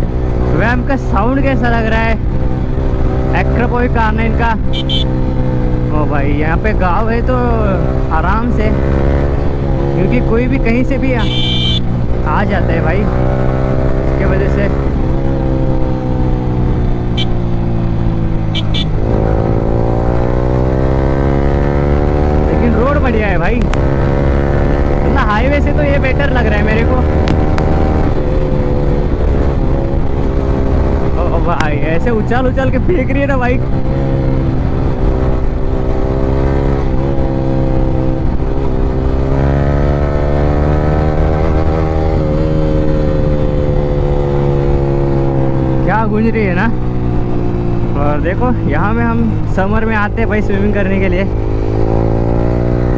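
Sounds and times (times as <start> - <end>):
motorcycle engine: 0.0 - 52.9
motorcycle engine under load: 11.2 - 12.3, 46.7 - 52.9.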